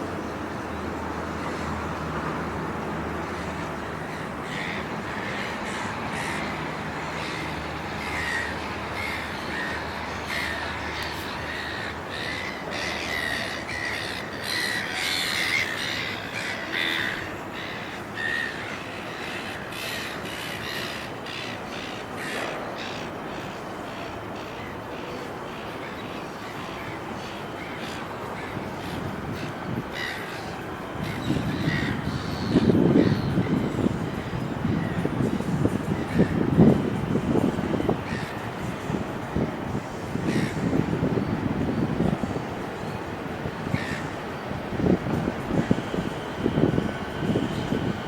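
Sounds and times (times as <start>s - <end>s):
low rumble of city and rail: 0.0s - 48.0s
birds cawing: 4.0s - 23.0s, 27.6s - 33.8s, 38.0s - 38.4s, 40.2s - 40.8s, 43.7s - 44.1s.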